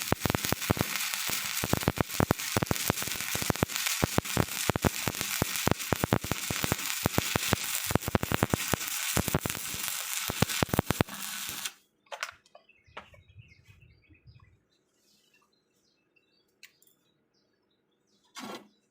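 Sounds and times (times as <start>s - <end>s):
welding arc crackling and popping: 0.0s - 11.8s.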